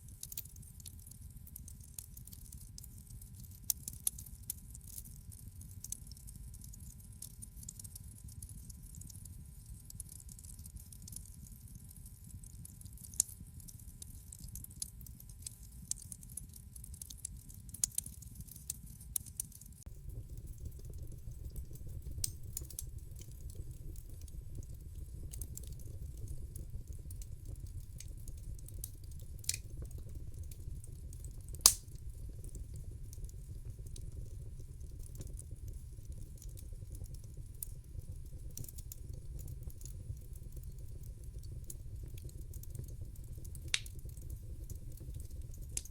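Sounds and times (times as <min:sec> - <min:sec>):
fire pops and snaps: 0:00.0 - 0:45.9
low rumble of flames: 0:19.8 - 0:45.9.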